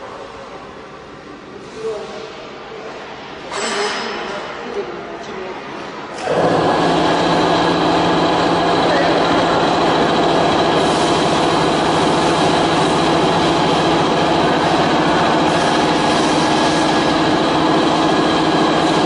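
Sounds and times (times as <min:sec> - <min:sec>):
router machinery running: 0:06.2 - 0:19.0.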